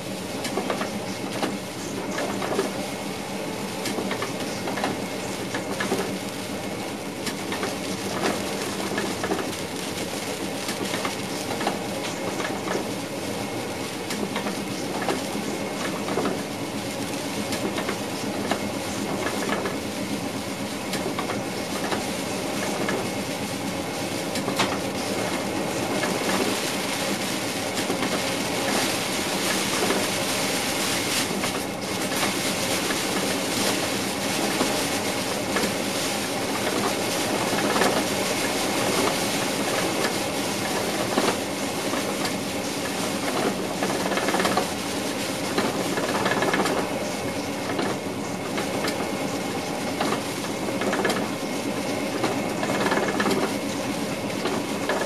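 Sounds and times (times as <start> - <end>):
steady train hum: 0.0 - 55.0
train wheels clicking over joints: 3.8 - 55.0.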